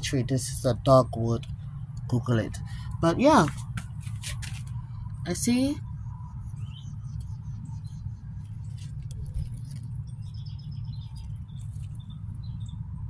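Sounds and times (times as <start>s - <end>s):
steady low rumble: 0.0s - 13.0s
small birds chirping: 5.4s - 13.0s.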